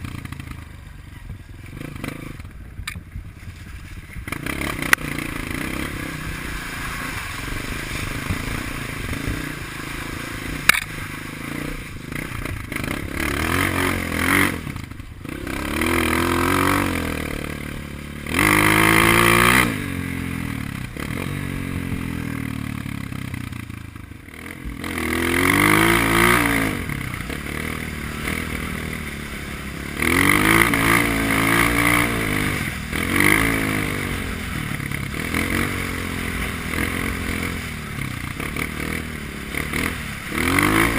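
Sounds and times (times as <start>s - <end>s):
dirt bike engine revving: 1.6s - 2.9s, 3.9s - 40.9s
sharp click: 10.6s - 11.0s.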